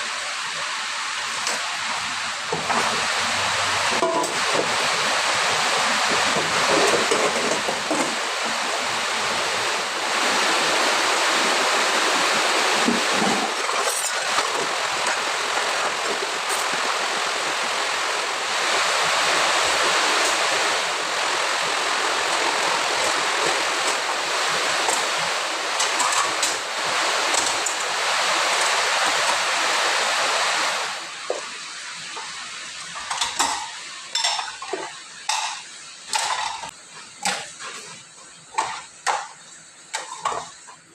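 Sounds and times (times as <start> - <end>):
tap water running: 0.0 - 40.9
dishes and glasses clinking: 4.0 - 4.4, 33.0 - 36.7.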